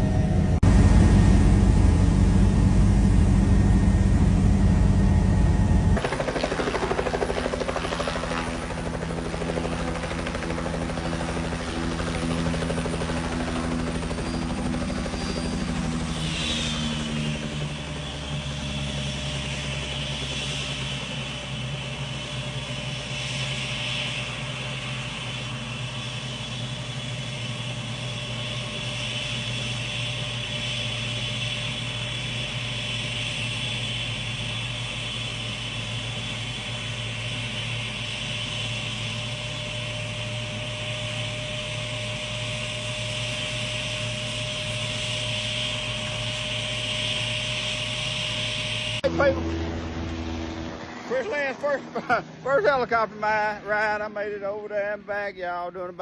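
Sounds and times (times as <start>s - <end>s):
high whine: 0.0s - 20.8s, 41.9s - 56.0s
helicopter engine and rotor drone: 0.0s - 56.0s.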